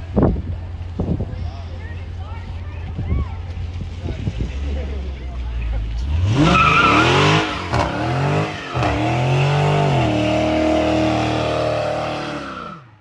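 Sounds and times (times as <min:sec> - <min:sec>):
car engine revving: 0:03.6 - 0:13.0.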